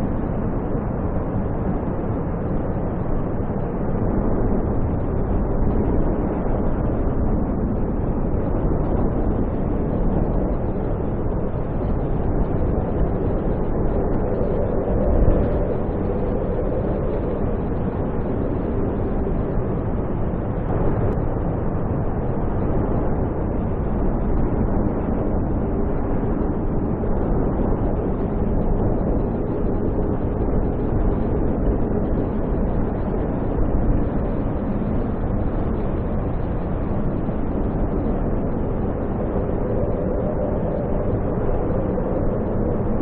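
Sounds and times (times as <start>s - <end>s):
wind roaring: 0.0s - 43.0s.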